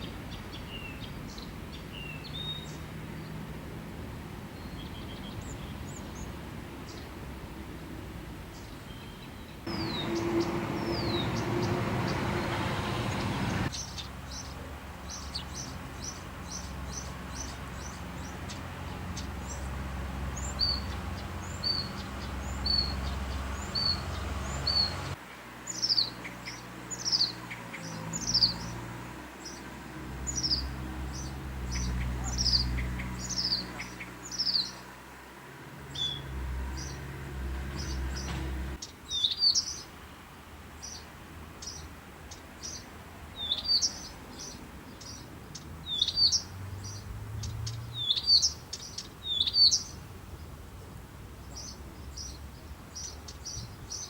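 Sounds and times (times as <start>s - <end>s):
outdoor background noise: 0.0s - 54.0s
birds chirping and calling: 8.6s - 35.0s, 35.8s - 39.9s, 40.8s - 50.0s, 51.4s - 54.0s.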